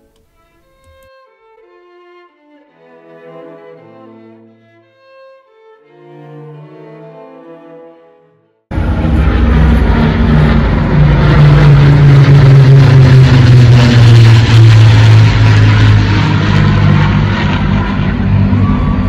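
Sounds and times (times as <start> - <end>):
aircraft passing close by: 8.7 - 19.0.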